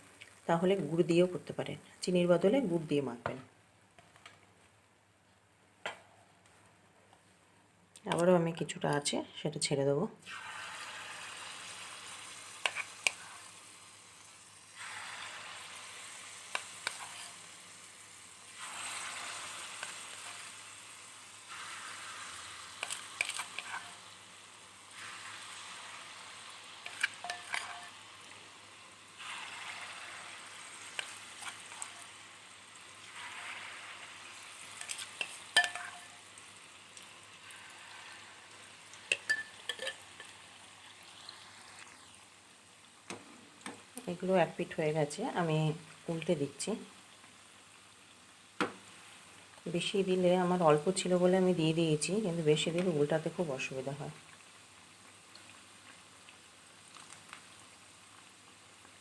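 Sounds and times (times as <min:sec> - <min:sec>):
batter sizzling in hot oil: 0:10.2 - 0:59.0
spoon clinking against pan: 0:26.9 - 0:28.0, 0:35.5 - 0:36.2, 0:39.1 - 0:40.3.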